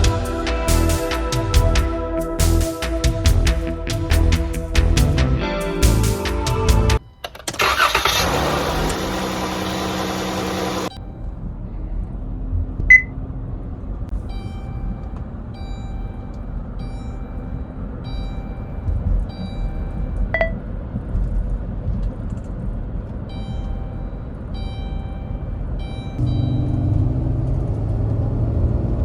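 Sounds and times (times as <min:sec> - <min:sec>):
running vehicle rumble: 0:00.0 - 0:07.0, 0:07.6 - 0:29.0
electronic warning chime: 0:14.2 - 0:20.6, 0:23.3 - 0:27.0
sharp pings: 0:14.3 - 0:20.6.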